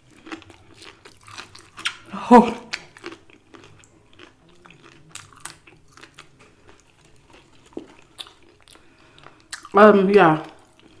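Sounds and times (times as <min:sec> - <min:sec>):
person chewing crispy food: 0:00.0 - 0:11.0
wet mouth clicks: 0:01.4 - 0:03.9.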